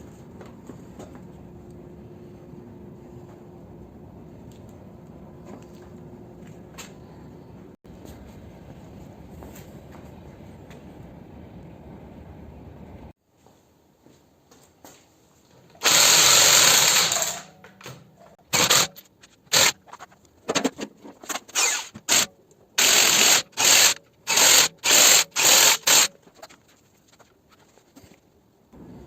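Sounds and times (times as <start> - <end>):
power tool running in bursts: 15.8 - 17.5, 18.5 - 18.9, 21.6 - 26.1.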